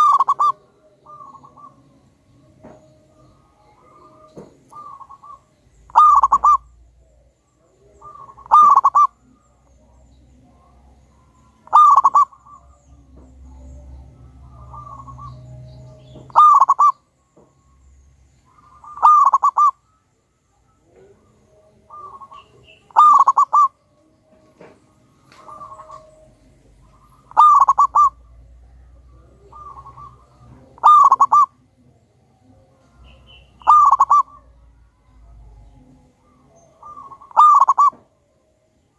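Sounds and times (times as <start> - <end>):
dove cooing: 0.0 - 17.1, 18.5 - 19.9, 20.8 - 31.9, 32.5 - 38.3.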